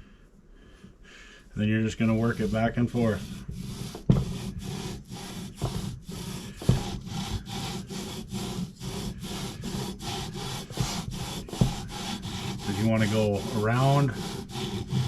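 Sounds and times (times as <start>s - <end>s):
rhythmic gritty rubbing: 1.6s - 15.0s
louder knocks: 4.0s - 4.8s, 5.6s - 7.3s, 10.1s - 12.7s.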